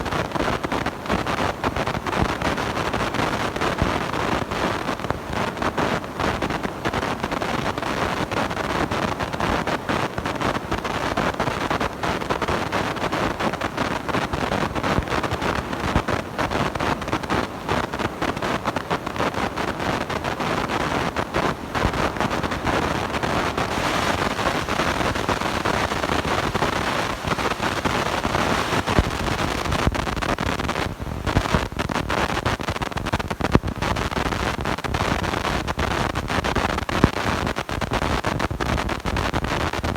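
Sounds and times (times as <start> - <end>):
harsh crackling microphone distortion: 0.0 - 39.9.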